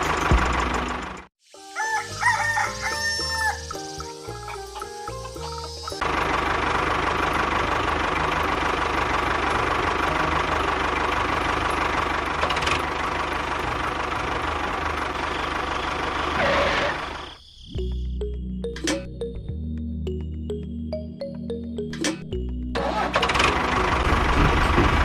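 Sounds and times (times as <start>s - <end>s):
engine running with knocking pulse: 0.0s - 1.3s, 4.4s - 17.3s, 22.3s - 25.0s.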